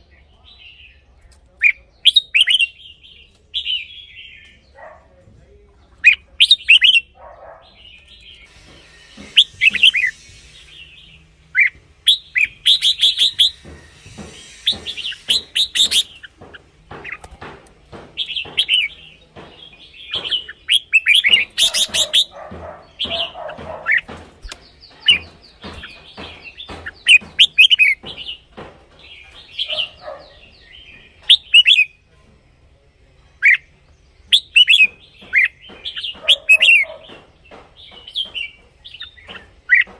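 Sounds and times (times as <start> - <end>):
bulbul chirping song: 6.0 - 32.0, 33.4 - 37.2.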